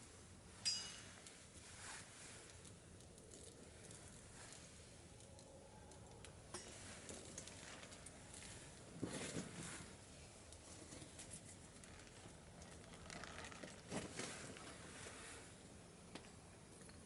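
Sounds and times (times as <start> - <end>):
wood fire crackling and popping: 11.6 - 14.7.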